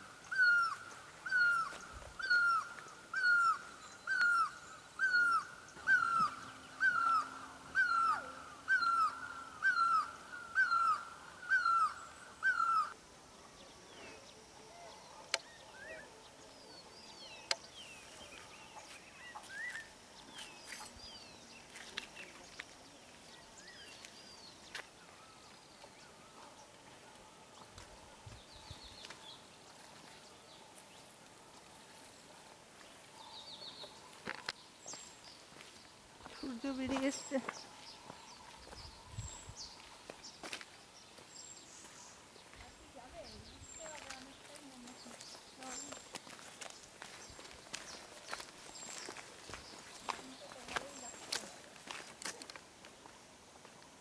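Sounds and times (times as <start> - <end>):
small birds chirping and whistling: 47.0 - 51.5.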